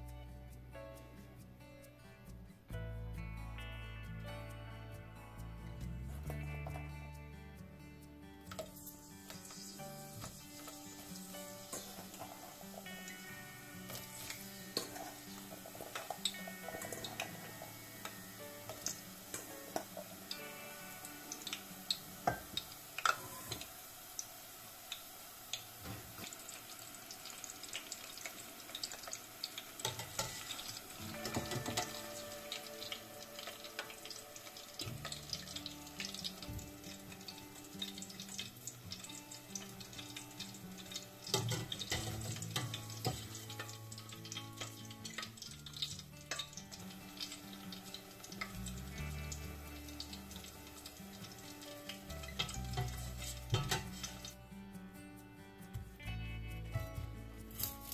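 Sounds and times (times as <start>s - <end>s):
soft background music: 0.0s - 25.2s, 25.8s - 57.9s
deep-frying sizzle: 8.4s - 54.4s
oil crackling and popping: 8.4s - 54.5s, 57.5s - 57.9s.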